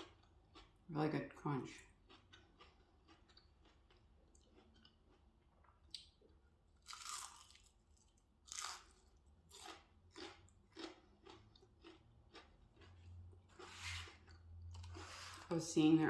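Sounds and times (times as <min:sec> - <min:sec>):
crunchy chewing: 0:01.8 - 0:06.2, 0:06.8 - 0:15.5
biting crispy onion ring: 0:06.8 - 0:15.0.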